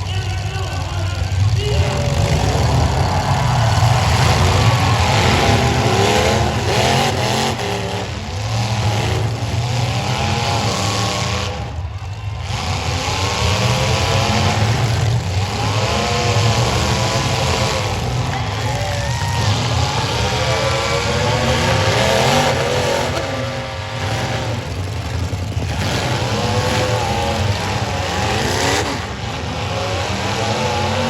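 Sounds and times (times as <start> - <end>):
car engines revving: 0.0 - 31.0.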